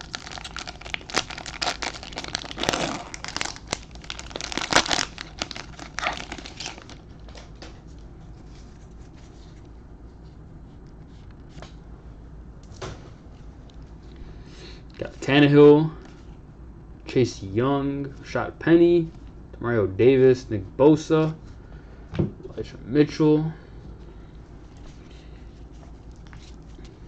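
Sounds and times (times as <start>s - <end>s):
plastic wrapper crinkling: 0.0s - 7.6s.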